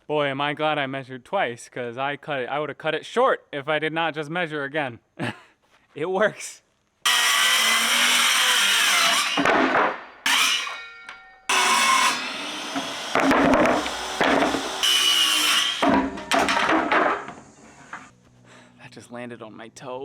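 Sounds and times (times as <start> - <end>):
power saw cutting plywood: 7.1 - 10.8, 11.5 - 18.1.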